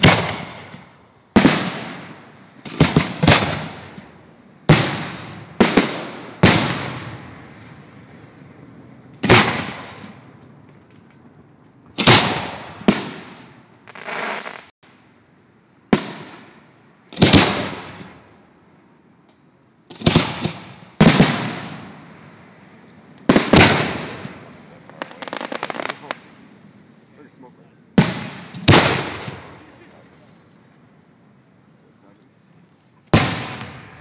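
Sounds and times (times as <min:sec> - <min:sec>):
fireworks bangs with rolling echo: 0:00.0 - 0:11.1, 0:11.9 - 0:14.7, 0:15.9 - 0:18.4, 0:19.9 - 0:22.5, 0:23.2 - 0:26.4, 0:28.0 - 0:30.0, 0:33.0 - 0:34.0.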